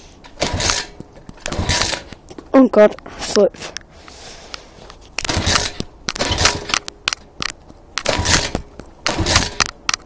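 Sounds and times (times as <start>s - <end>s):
motorbike engine turning over: 0.4s - 2.2s, 5.2s - 10.0s.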